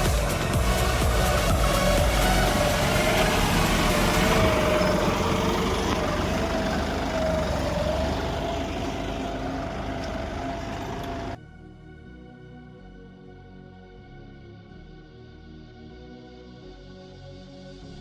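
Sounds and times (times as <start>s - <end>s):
tractor engine running: 0.0s - 11.4s.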